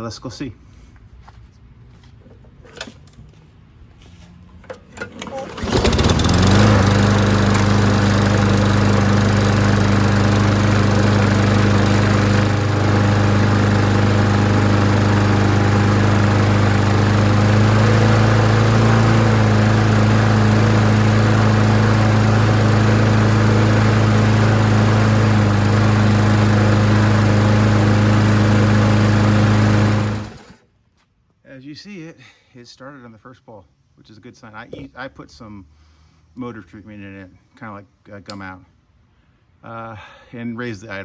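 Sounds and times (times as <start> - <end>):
lawn mower engine running: 4.6 - 30.6.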